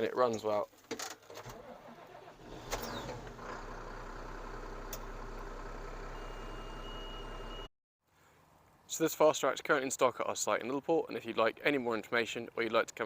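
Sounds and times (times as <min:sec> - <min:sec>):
diesel engine idling: 0:01.9 - 0:07.6
thin high beep: 0:06.2 - 0:07.7.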